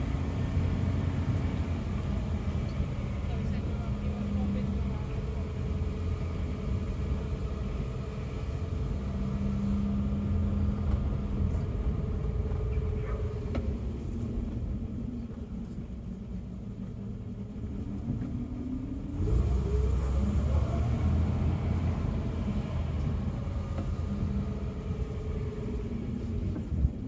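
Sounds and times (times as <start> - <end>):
car engine rumbling in cabin: 0.0 - 27.0.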